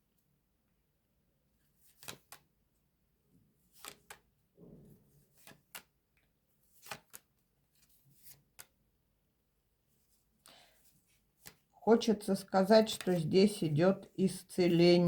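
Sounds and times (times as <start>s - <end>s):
soft rustle of cards: 1.5s - 9.0s, 9.6s - 15.0s
cards clicking on a table: 1.9s - 2.4s, 3.8s - 4.2s, 5.4s - 5.9s, 6.8s - 7.3s, 8.2s - 8.8s.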